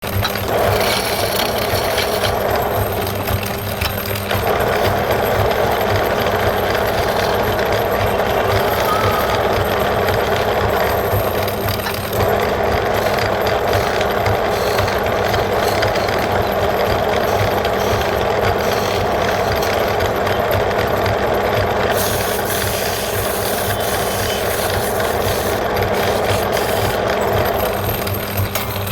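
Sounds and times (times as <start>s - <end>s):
lathe motor hum: 0.0s - 28.6s
turning tool scraping wood: 0.3s - 2.4s, 21.9s - 27.1s.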